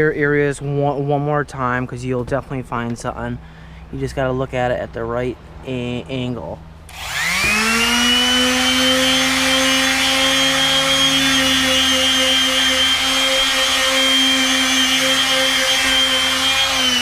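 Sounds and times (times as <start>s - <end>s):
palm sander sanding wood: 6.9s - 17.0s.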